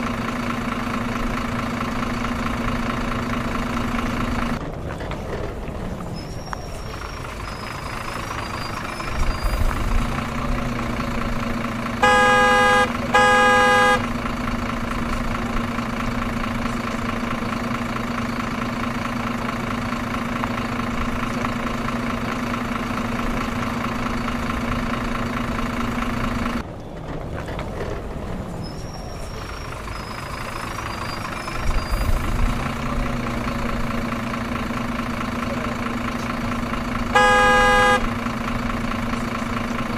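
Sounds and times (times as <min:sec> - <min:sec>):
truck engine running: 0:00.0 - 0:39.9
truck horn honks: 0:11.9 - 0:14.3, 0:37.0 - 0:38.4.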